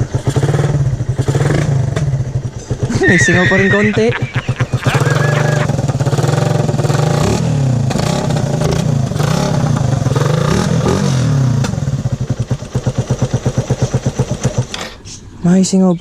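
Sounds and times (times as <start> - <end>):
motorcycle engine idling: 0.0 - 3.0, 11.7 - 15.4
motorcycle engine revving: 0.0 - 3.0, 4.2 - 14.8.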